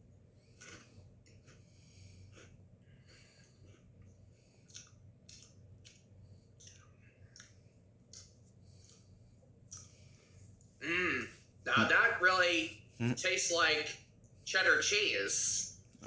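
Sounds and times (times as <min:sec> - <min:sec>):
chewing crunchy snacks: 0:00.4 - 0:09.1.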